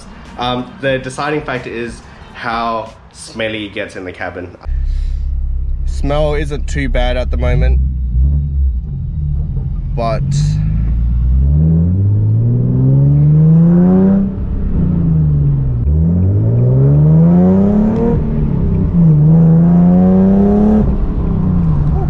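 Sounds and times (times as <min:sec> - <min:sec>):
car engine revving: 0:04.7 - 0:22.0.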